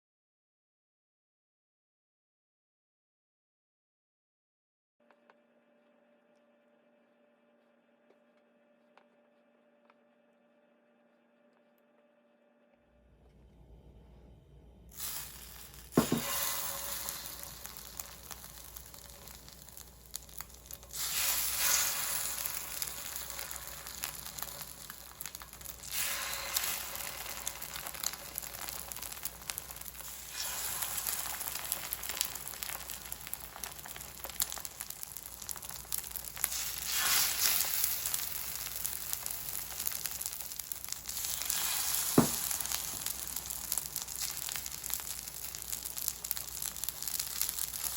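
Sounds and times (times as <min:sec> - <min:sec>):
food sizzling in a pan: 0:14.9 - 0:47.9.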